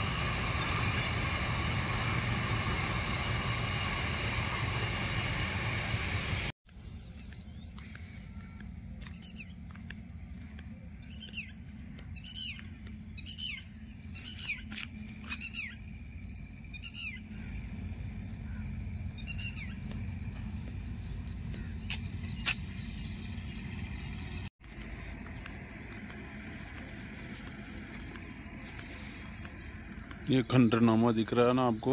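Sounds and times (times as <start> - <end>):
steady low rumble: 0.0 - 31.9
bird calling with downward notes: 6.7 - 24.5.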